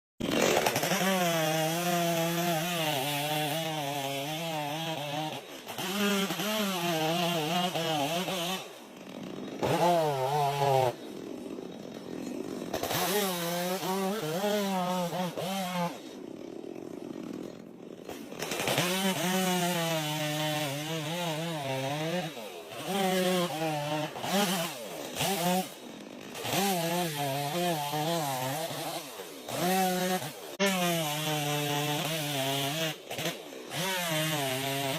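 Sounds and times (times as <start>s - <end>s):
chainsaw cutting wood: 0.2s - 34.9s.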